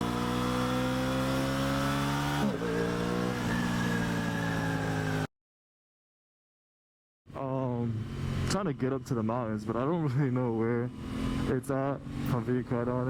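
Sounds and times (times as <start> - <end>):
motorcycle engine accelerating: 0.0 - 5.3, 10.7 - 13.0.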